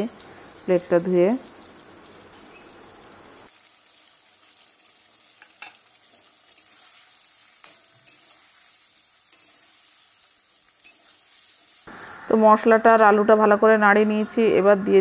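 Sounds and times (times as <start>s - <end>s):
food sizzling in oil: 0.0s - 13.8s
metal spatula scraping wok: 6.4s - 11.8s.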